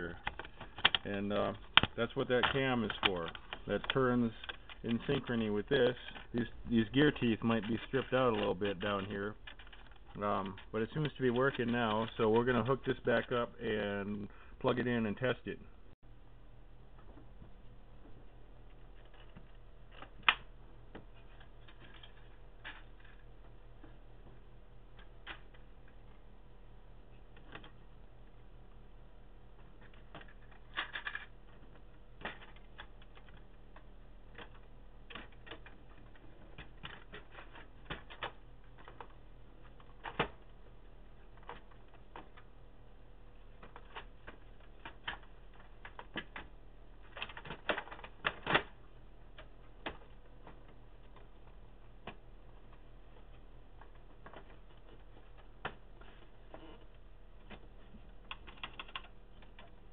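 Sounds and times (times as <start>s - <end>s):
plastic parts clicking and knocking: 0.0s - 13.5s, 17.0s - 26.3s, 27.2s - 28.0s, 29.5s - 42.7s, 43.3s - 59.9s
low electrical hum: 0.0s - 59.9s
plastic parts snapping: 0.2s - 5.4s.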